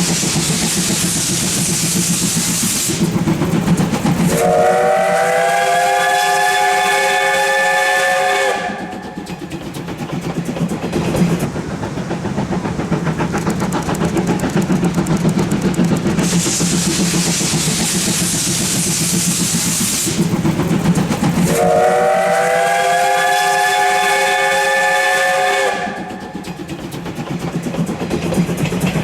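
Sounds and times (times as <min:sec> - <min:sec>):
loud steam hiss: 0:00.0 - 0:29.0
steam locomotive exhaust chuffs: 0:00.0 - 0:29.0
steam whistle blast: 0:04.3 - 0:09.2, 0:21.4 - 0:26.2.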